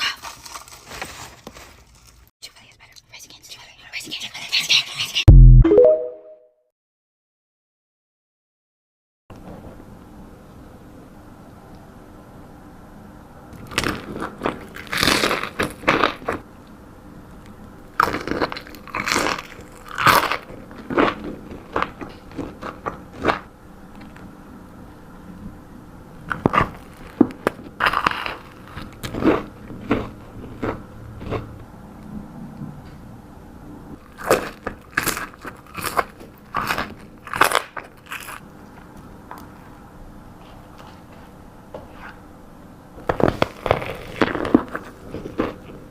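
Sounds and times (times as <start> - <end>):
crunchy food chewing: 13.6 - 16.4, 17.3 - 24.2, 26.2 - 31.6, 34.0 - 38.5, 43.1 - 45.9.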